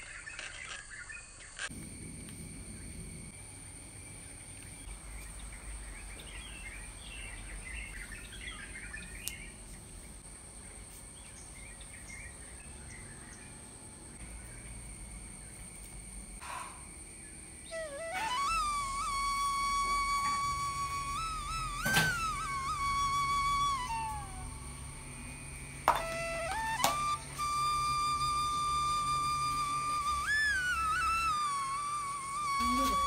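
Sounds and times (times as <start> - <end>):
thin high-pitched whine: 0.0 - 33.0
small birds chirping: 3.6 - 15.7
flute-like gliding tone: 17.6 - 33.0.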